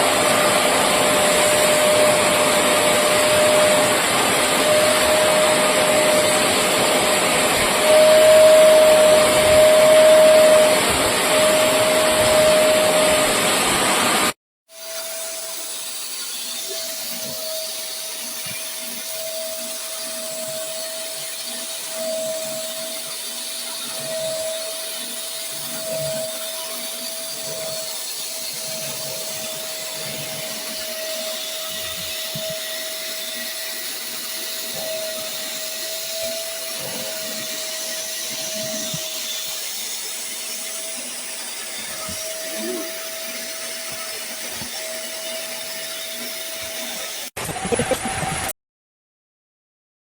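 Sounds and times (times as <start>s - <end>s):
suction motor whine: 0.0s - 15.7s, 16.3s - 48.5s.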